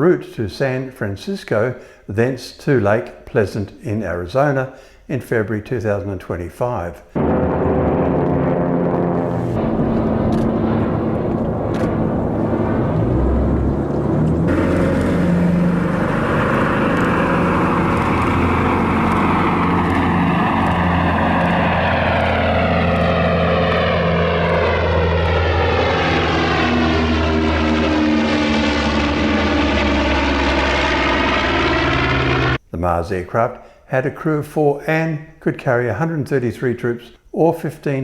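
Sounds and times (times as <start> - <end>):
aircraft propeller engines droning: 6.6 - 32.6.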